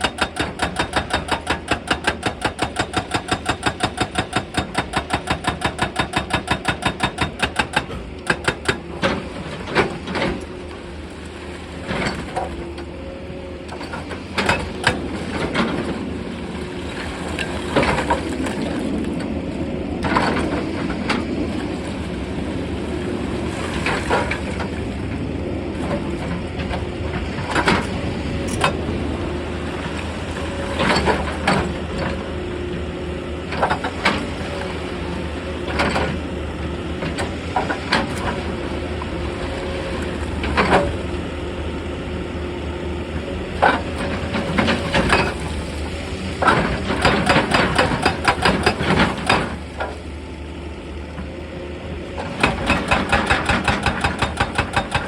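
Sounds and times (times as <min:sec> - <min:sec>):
rock breaker hammering: 0:00.0 - 0:08.9, 0:47.0 - 0:49.5, 0:52.4 - 0:55.0
diesel engine running: 0:00.0 - 0:55.0.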